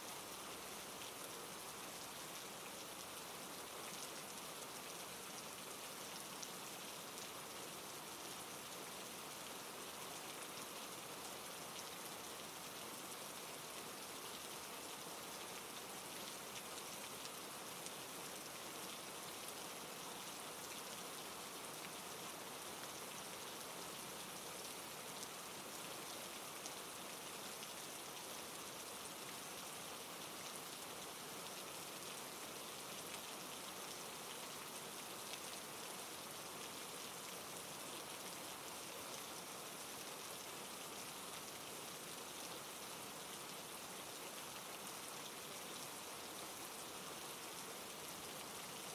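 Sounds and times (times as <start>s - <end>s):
rain falling: 0.0s - 48.9s.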